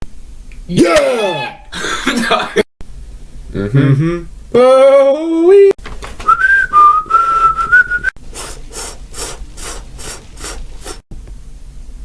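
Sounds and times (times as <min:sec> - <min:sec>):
person whistling: 0:06.2 - 0:08.2.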